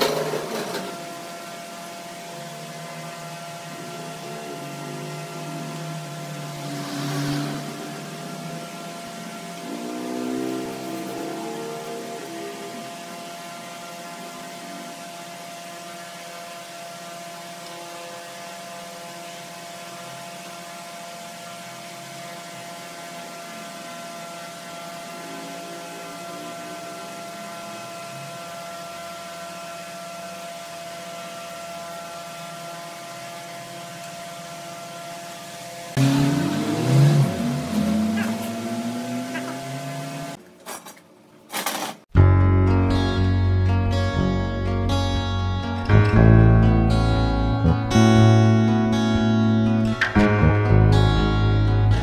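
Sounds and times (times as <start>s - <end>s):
wood lathe motor humming: 0.0s - 20.5s, 21.8s - 40.4s.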